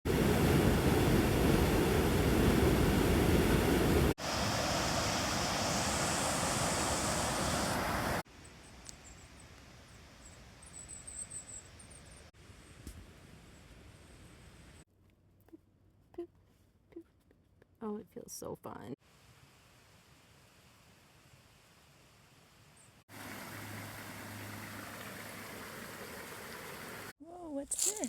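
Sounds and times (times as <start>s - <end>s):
flowing water rushing: 0.1s - 8.2s, 23.1s - 27.1s.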